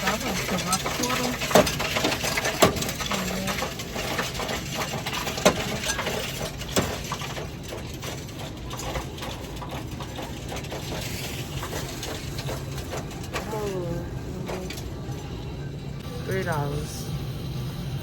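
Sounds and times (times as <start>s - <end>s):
coins clinking: 0.0s - 8.8s
coin machine hum: 0.0s - 18.0s.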